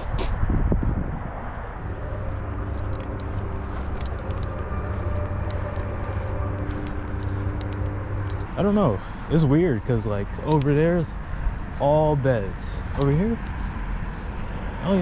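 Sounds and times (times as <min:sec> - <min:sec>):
low rumble: 0:00.0 - 0:11.8.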